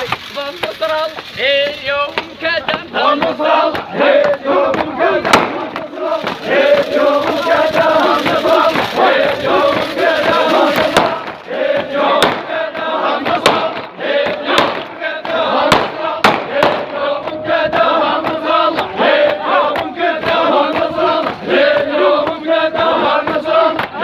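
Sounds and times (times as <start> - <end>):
men chanting in unison: 0.8 - 24.0
sharp loud cracks: 3.7 - 12.6, 15.6 - 17.0.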